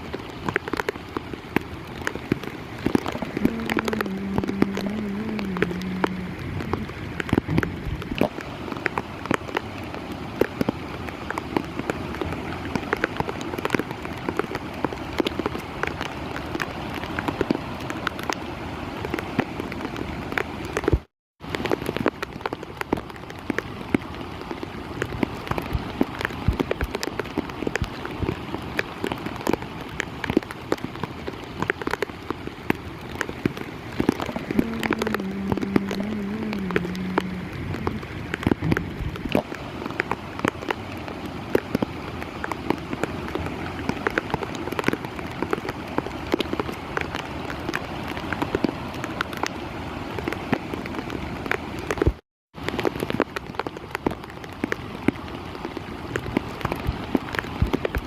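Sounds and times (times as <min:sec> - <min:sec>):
heavy rain falling: 0:00.0 - 0:58.0
wavering low tone: 0:03.3 - 0:08.1, 0:34.5 - 0:39.1.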